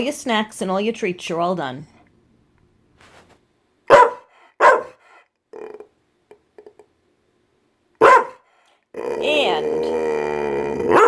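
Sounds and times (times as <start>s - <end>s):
dog barking: 3.9s - 5.1s, 8.0s - 8.5s
dog grumbling: 5.5s - 5.9s, 8.9s - 11.0s.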